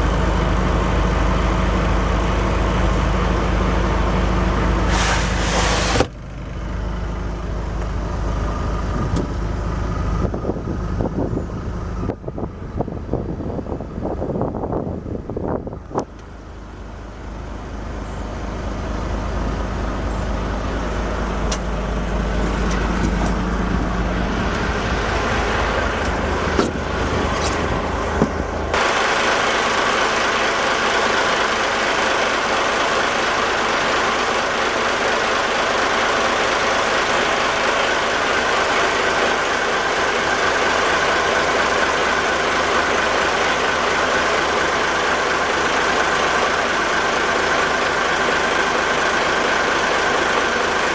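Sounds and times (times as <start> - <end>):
boat engine running: 19.6 - 50.9.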